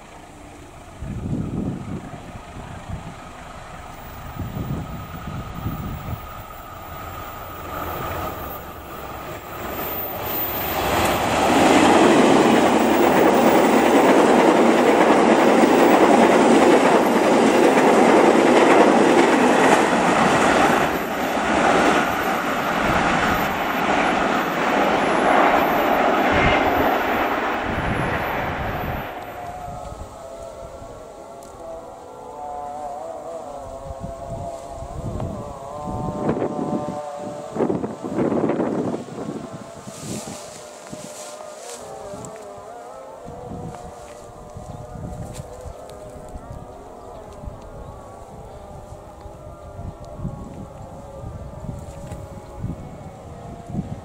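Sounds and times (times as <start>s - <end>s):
train wheels rumbling: 0.0s - 32.3s.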